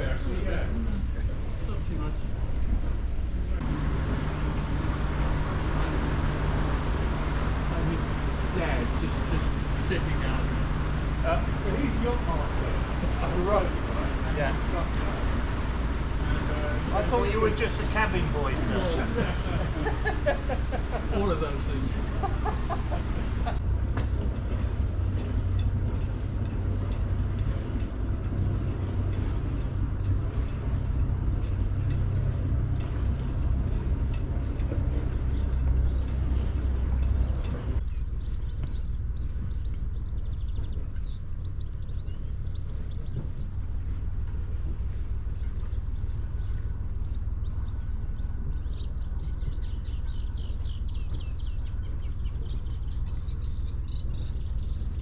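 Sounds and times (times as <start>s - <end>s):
boat engine humming: 0.0s - 55.0s
rushing noise: 3.6s - 37.8s
small birds chirping: 4.0s - 55.0s.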